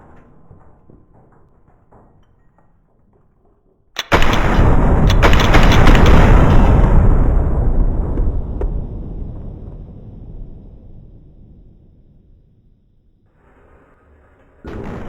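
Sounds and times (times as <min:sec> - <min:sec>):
sharp crack: 0:04.0 - 0:08.8.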